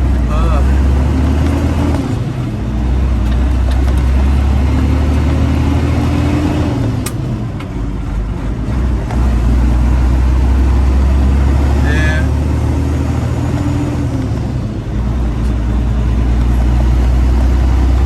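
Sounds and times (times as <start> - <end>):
diesel engine drone: 0.0 - 18.0
sharp click: 7.0 - 7.3.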